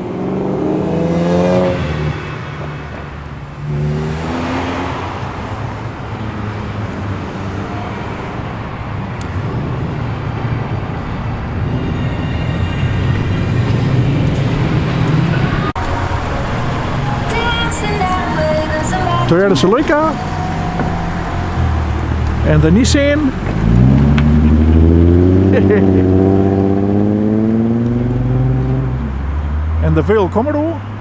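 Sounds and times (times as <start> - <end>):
car engine revving: 0.0 - 31.0
deep exhaust rumble: 9.2 - 30.4.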